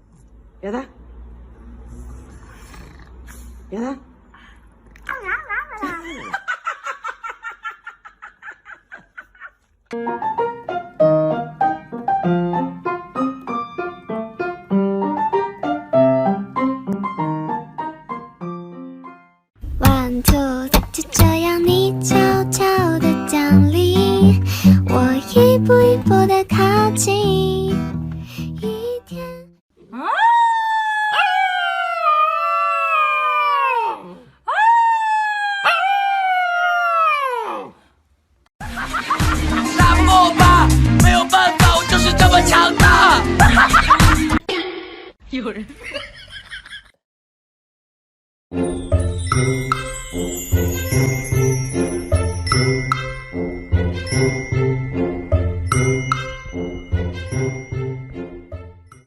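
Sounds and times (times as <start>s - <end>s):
piano music: 10.0s - 29.6s, 48.5s - 58.8s
dog howling: 29.9s - 37.8s.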